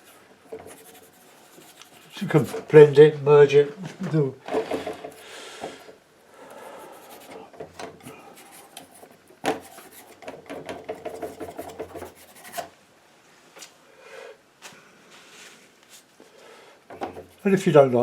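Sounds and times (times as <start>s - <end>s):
painting knife scraping paint: 0.0s - 2.8s, 6.6s - 12.7s, 17.0s - 18.0s.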